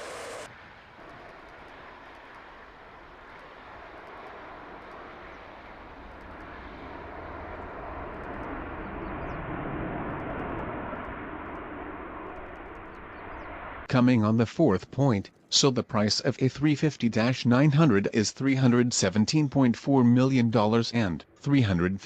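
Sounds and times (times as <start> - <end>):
jet airliner passing: 0.0 - 13.9.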